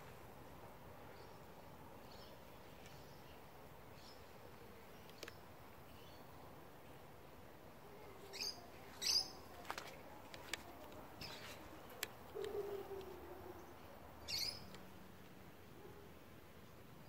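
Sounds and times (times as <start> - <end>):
bird chirping: 8.3 - 9.9, 11.0 - 14.9.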